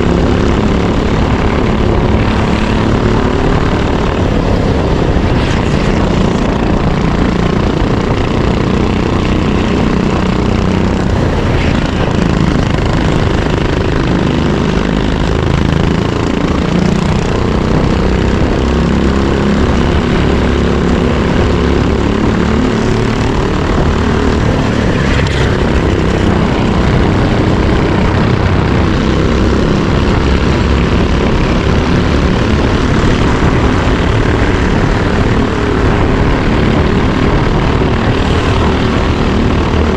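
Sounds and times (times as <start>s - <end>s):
kart engine buzzing: 0.0s - 39.9s
wind noise: 0.0s - 39.9s.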